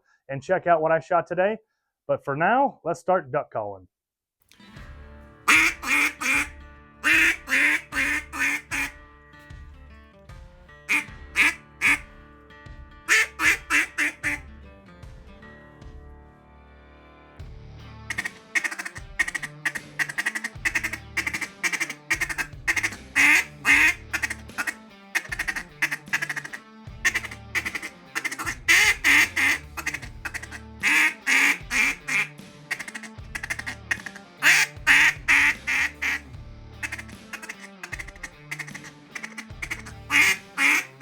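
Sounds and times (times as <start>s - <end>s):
duck call rapid clucking: 5.5s - 8.9s, 10.9s - 12.0s, 13.1s - 14.4s, 18.1s - 41.0s
duck call quacks: 5.5s - 9.0s, 10.9s - 12.0s, 13.1s - 14.4s, 18.1s - 36.2s, 36.8s - 41.0s.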